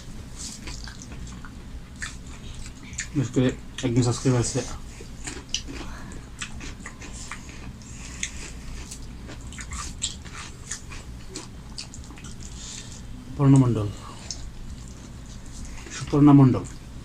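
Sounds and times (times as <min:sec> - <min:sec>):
low steady hum: 0:00.0 - 0:17.0
person chewing food: 0:00.4 - 0:03.2, 0:04.2 - 0:16.2.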